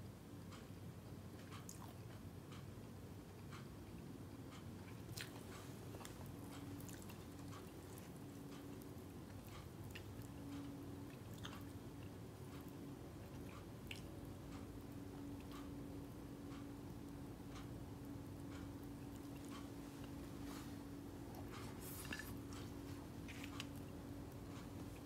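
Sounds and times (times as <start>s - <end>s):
faint low hum: 0.0s - 25.0s
chewing and mouth clicks: 1.4s - 2.2s, 4.5s - 14.7s, 21.3s - 25.0s.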